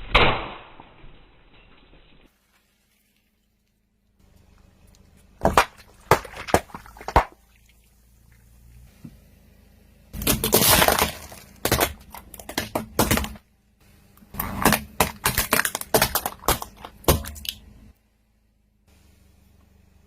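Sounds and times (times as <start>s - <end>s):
tyre crunching brittle objects: 10.2s - 13.4s, 14.3s - 17.7s.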